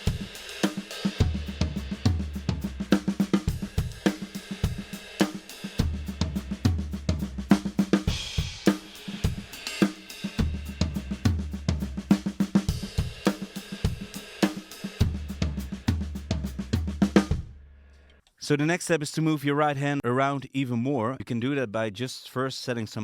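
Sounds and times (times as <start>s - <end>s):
drum kit groove: 0.0s - 17.6s.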